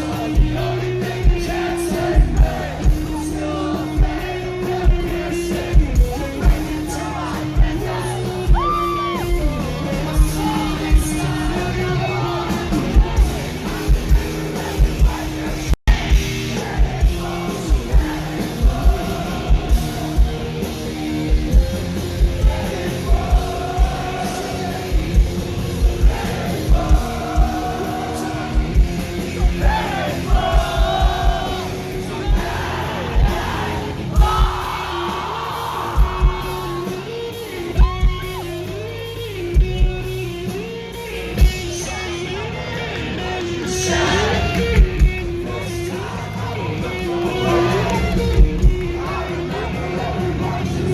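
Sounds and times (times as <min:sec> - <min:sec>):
crowd yelling: 0:00.0 - 0:39.2, 0:40.6 - 0:50.9
distorted electric guitars: 0:00.0 - 0:50.9
person singing: 0:41.3 - 0:50.9.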